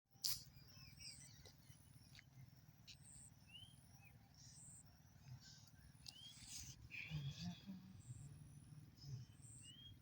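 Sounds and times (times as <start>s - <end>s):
birds chirping and whistling: 0.3s - 10.0s.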